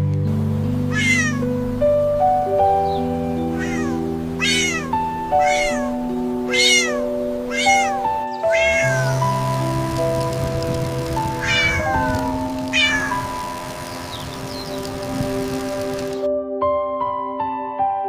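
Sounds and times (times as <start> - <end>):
gentle background music: 0.0 - 18.0
kitten mewing: 0.9 - 1.5, 3.5 - 9.4, 11.4 - 13.4.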